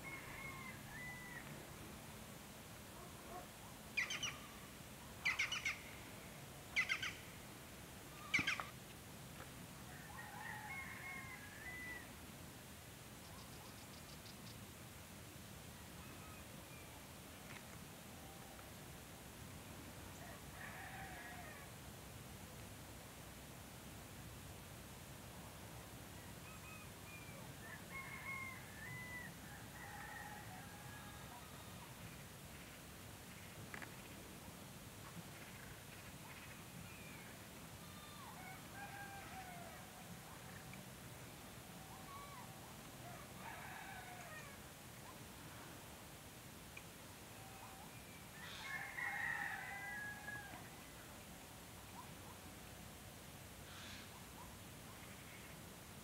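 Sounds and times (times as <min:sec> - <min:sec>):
faint distant bird calls: 0:08.0 - 0:08.8, 0:26.2 - 0:45.8, 0:46.7 - 0:52.6, 0:53.6 - 0:55.7.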